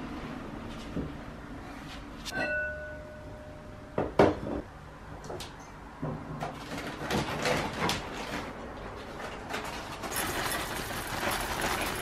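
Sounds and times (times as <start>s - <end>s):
crockery clinking and ringing: 2.3s - 3.9s
cupboard sounds: 6.0s - 12.0s.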